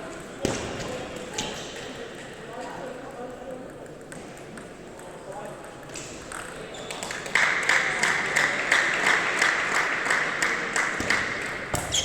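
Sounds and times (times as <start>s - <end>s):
spectators clapping: 7.0s - 11.4s.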